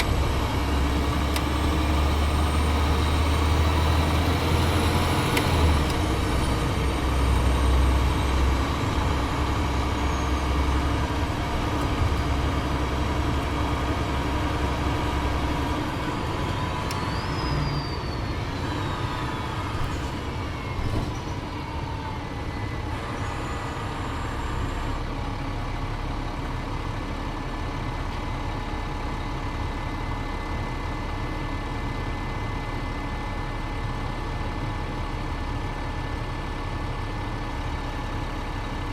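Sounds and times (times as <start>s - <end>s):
transmission whine falling: 0.0s - 25.0s
bus diesel engine slowing: 0.0s - 38.9s.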